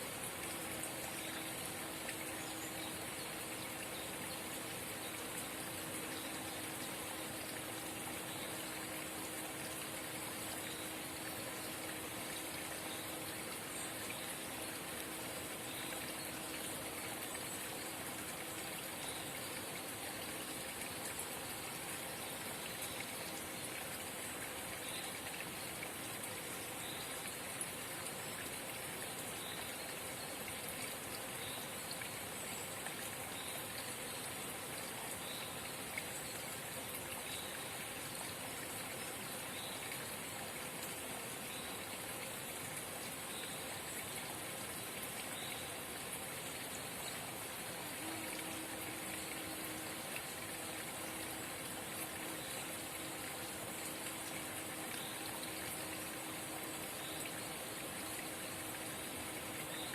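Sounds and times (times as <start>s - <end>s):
spring water trickling: 0.0s - 59.9s.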